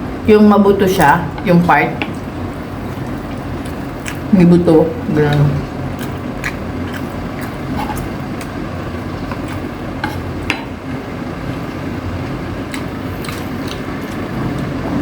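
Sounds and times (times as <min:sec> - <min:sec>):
person chewing chicken: 0:03.0 - 0:04.3, 0:05.8 - 0:10.3, 0:11.7 - 0:15.0.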